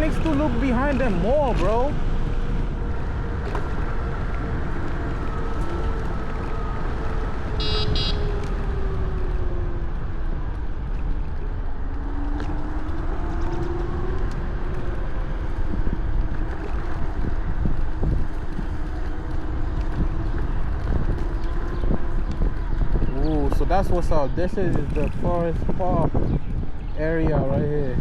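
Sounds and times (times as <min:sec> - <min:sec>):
faint electric motor whine: 0:00.0 - 0:08.6
wind buffeting microphone: 0:00.0 - 0:28.0.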